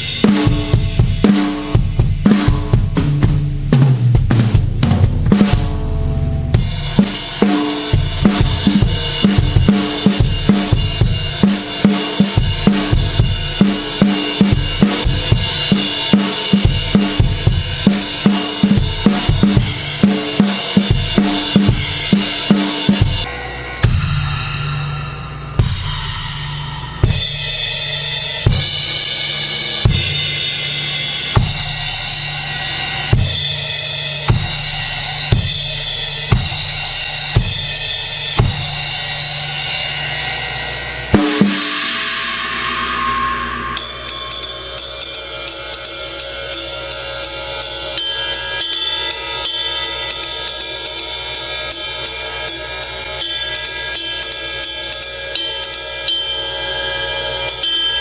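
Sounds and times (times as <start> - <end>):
crashing cymbal: 0.0 - 4.3, 5.3 - 58.0
bass drum hits: 0.0 - 7.2, 22.9 - 27.5
drum kit groove: 0.0 - 56.2.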